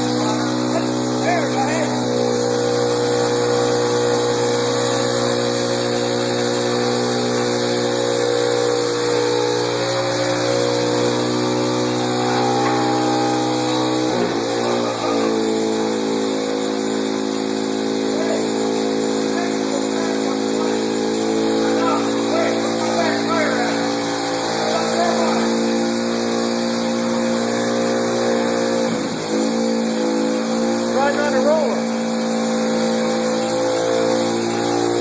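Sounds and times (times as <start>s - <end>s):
motorbike engine running: 0.0s - 35.0s.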